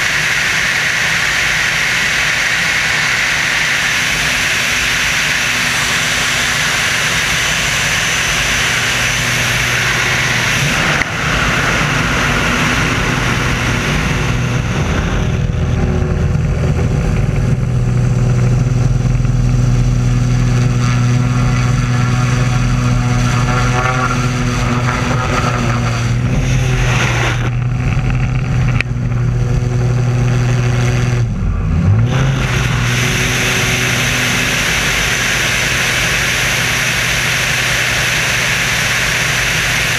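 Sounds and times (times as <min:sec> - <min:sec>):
biplane engine and propeller: 0:00.0 - 0:39.9
wind rushing: 0:02.6 - 0:18.3.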